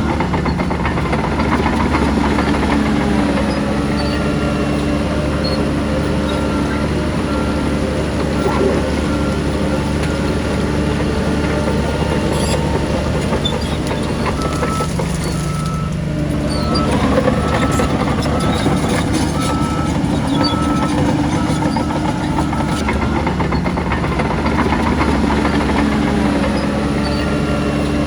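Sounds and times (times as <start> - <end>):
heavy diesel engine droning: 0.0 - 28.0
reversing alarm beeping: 1.7 - 23.1.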